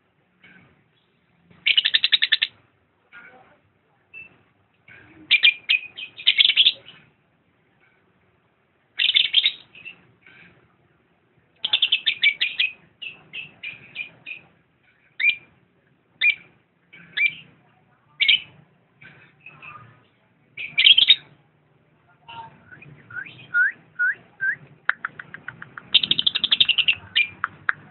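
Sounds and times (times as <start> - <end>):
lovebird chirping: 1.0 - 2.6, 9.0 - 10.0, 16.2 - 17.5, 20.6 - 21.3, 22.3 - 27.9.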